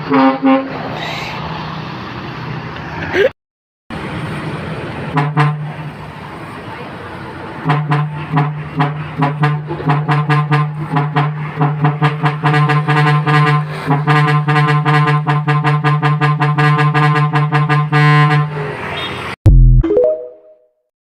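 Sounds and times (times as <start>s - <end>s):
musical air horn staccato tune: 5.2s - 5.7s, 7.7s - 18.7s.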